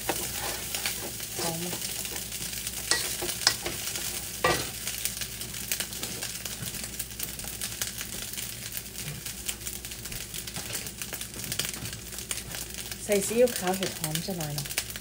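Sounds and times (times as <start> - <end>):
wooden spatula scraping wok: 0.0 - 4.8
rice sizzling in a wok: 0.0 - 15.0.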